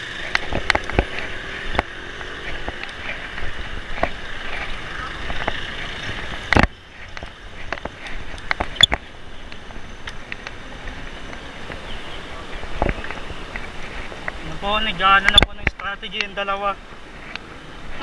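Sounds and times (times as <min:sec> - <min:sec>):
bicycle clicks and rattles: 0:00.0 - 0:12.0
road rumble: 0:00.0 - 0:18.0
wind: 0:00.0 - 0:18.0.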